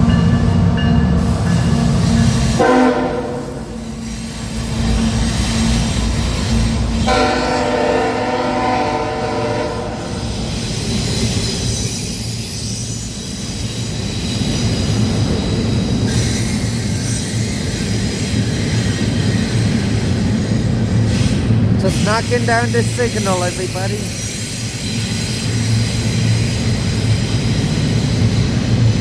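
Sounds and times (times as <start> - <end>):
train rumbling on rails: 0.0 - 29.0
train horn chord: 2.6 - 3.7, 7.1 - 10.1.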